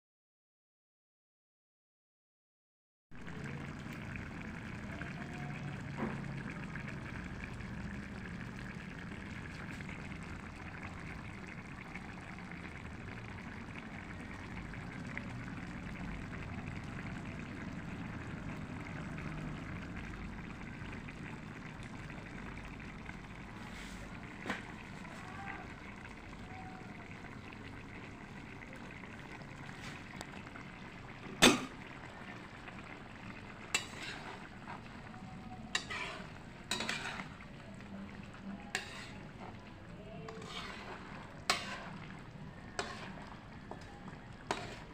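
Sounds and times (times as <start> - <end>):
food sizzling in a pan: 29.0 - 44.9.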